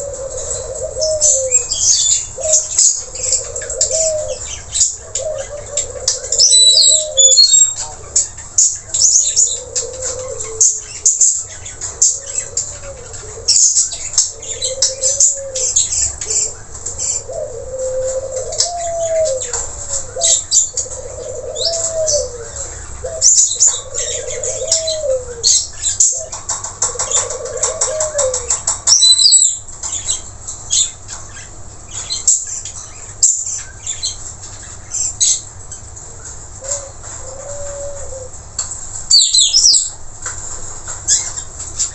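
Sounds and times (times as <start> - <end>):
low coo-like calls: 0.0 - 8.2, 8.9 - 29.6, 36.1 - 38.4.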